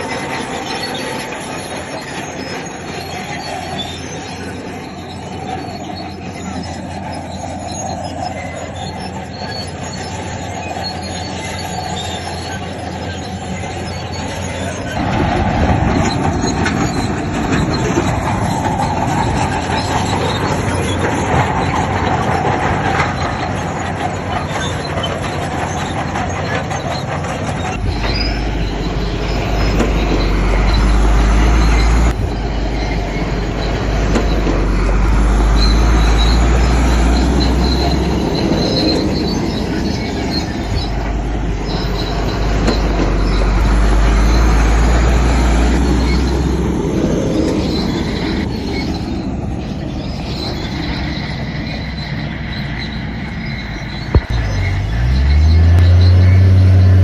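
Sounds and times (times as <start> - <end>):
diesel engine under load: 0.0 - 57.0
steel tracks clanking and squealing: 0.0 - 57.0
heavy low rumble: 27.7 - 51.0, 53.9 - 56.6.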